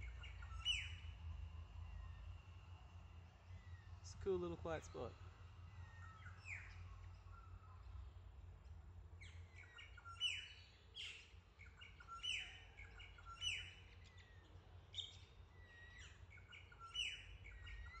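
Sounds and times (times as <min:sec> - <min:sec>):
low steady rumble: 0:00.0 - 0:09.5.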